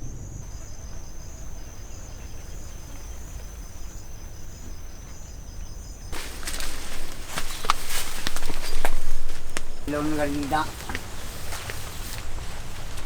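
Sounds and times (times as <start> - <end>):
insects buzzing: 0.0 - 13.0
low outdoor rumble: 0.0 - 13.0
dry crackling and snapping: 6.1 - 13.0.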